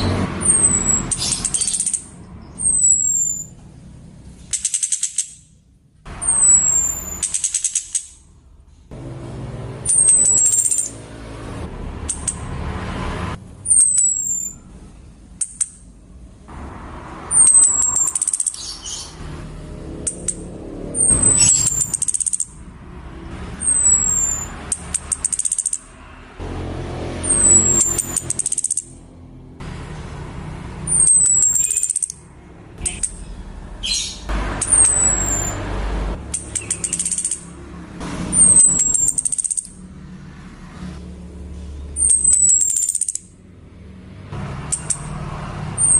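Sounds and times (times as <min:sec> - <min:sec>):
thrush high downward-sliding call: 0:27.2 - 0:28.3.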